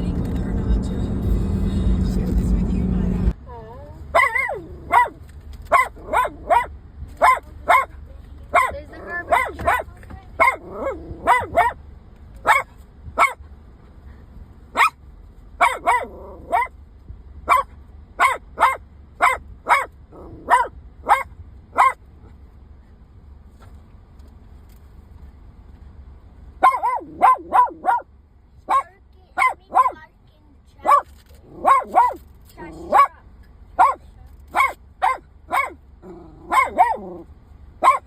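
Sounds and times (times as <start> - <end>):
dog barking: 4.1 - 7.9, 8.5 - 11.8, 12.4 - 13.4, 14.7 - 15.0, 15.6 - 16.7, 17.5 - 22.0, 26.6 - 28.1, 28.7 - 30.0, 30.8 - 33.2, 33.8 - 35.8, 36.4 - 37.2, 37.8 - 38.0.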